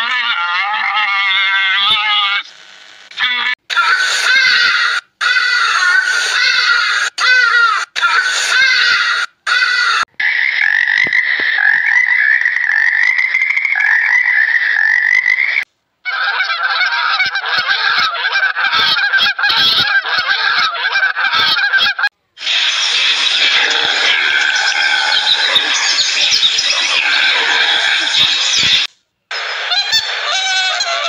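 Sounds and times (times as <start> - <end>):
geese honking: 16.1 - 28.9.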